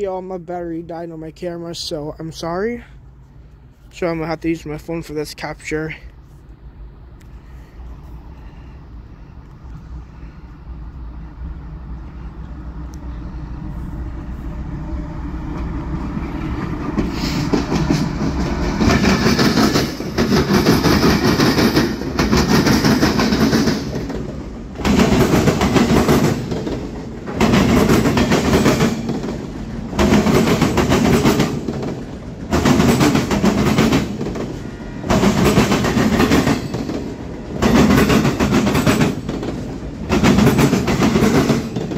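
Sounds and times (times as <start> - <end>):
freight train rumble: 0.0 - 41.9
train wheel clatter: 15.5 - 41.9.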